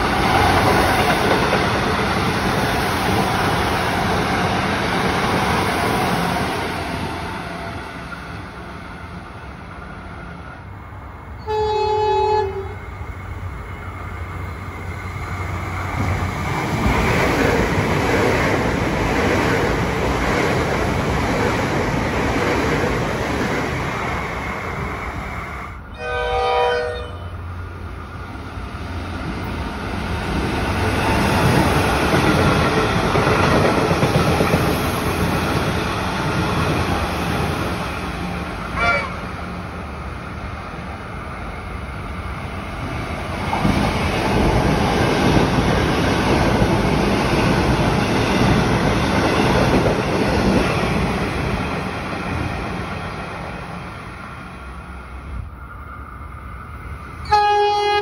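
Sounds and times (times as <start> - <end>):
train wheels rumbling on rails: 0.0 - 26.0, 27.4 - 58.0
train horn: 11.4 - 12.8, 25.9 - 27.5, 38.8 - 39.3, 57.2 - 58.0.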